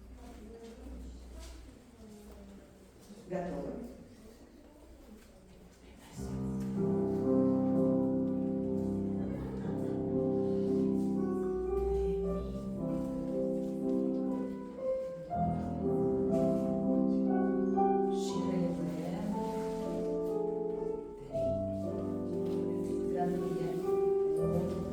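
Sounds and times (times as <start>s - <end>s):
classical piano music: 6.2s - 24.9s.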